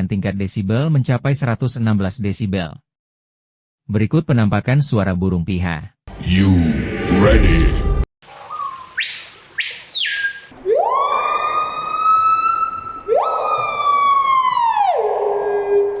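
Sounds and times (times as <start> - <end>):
bird calling with ringing whistles: 8.5 - 10.5.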